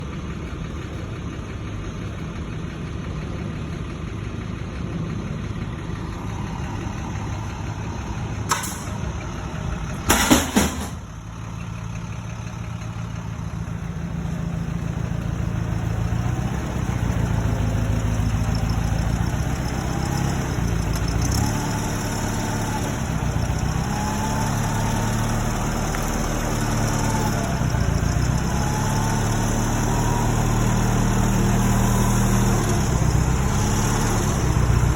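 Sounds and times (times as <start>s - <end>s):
engine running: 0.0s - 34.9s
loud clatter: 9.9s - 11.3s.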